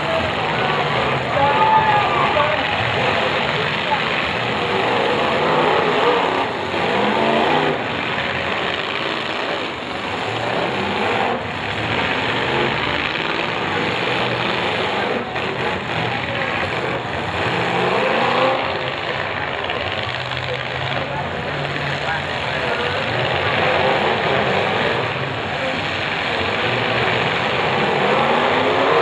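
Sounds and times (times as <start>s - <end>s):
car engines revving: 0.0s - 29.0s.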